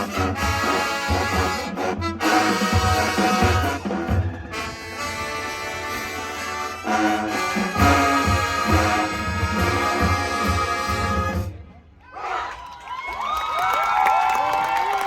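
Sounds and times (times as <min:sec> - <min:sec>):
brass chords: 0:00.0 - 0:11.8.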